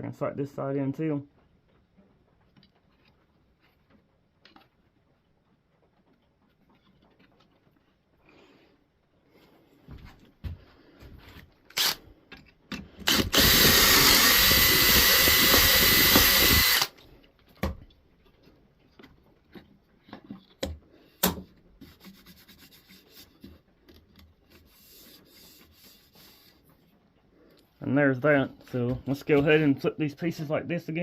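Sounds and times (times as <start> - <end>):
power drill boring into wood: 11.7 - 12.0, 13.0 - 17.0
knocks and clicks of wood handling: 17.4 - 22.0.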